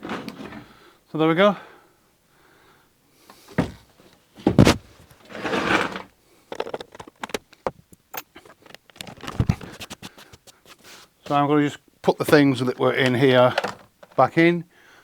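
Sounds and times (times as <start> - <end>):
brief rustle: 4.7 - 11.4.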